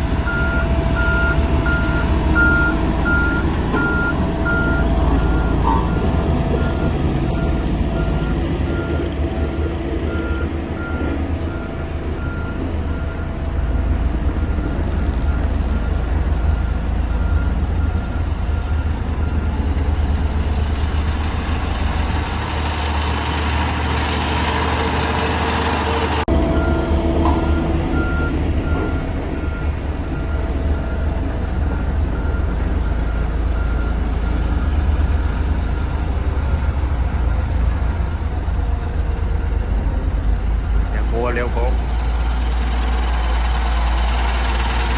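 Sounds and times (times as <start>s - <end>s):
heavy diesel engine running: 0.0s - 44.9s
reversing alarm beeping: 0.2s - 20.6s, 26.2s - 40.0s.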